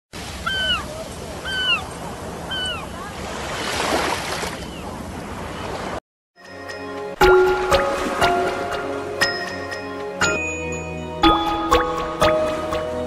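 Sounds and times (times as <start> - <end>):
falling bird calls: 0.3 - 3.1
ocean surf: 7.2 - 10.0.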